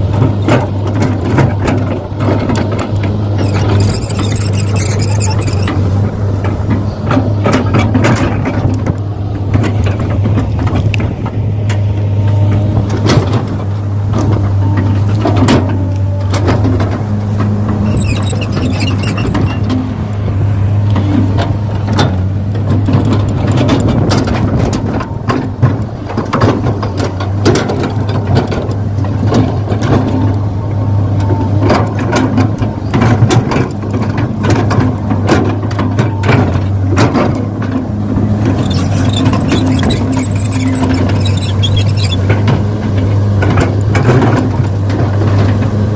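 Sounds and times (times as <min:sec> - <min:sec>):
model excavator motor drone: 0:01.6 - 0:10.0, 0:14.9 - 0:21.8, 0:37.4 - 0:44.5
soil scraping and clicks: 0:02.3 - 0:06.6, 0:16.4 - 0:19.8, 0:37.7 - 0:44.0.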